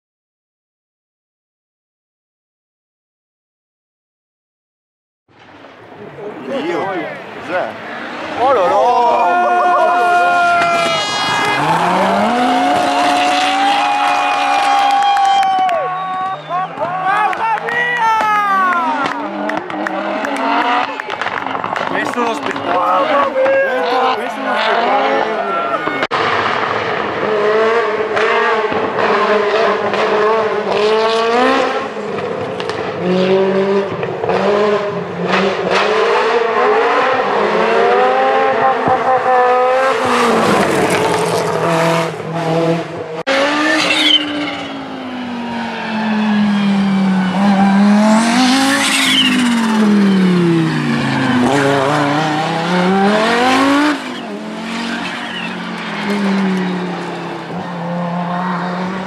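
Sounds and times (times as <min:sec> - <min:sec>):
rally car engines revving: 0:05.4 - 0:59.0.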